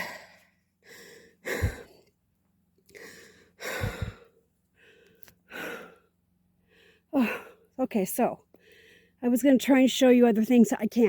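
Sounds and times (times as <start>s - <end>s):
person breathing hard and sighing: 0.0s - 2.1s, 2.9s - 6.1s.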